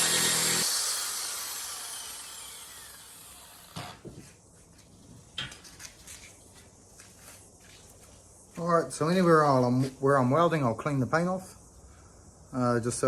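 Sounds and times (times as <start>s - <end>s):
angle grinder spinning down: 0.0s - 4.0s.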